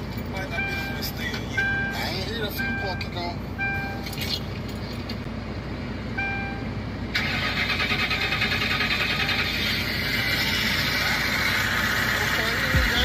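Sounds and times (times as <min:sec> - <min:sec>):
car chime: 0:00.5 - 0:04.2
car engine starting: 0:06.2 - 0:13.0.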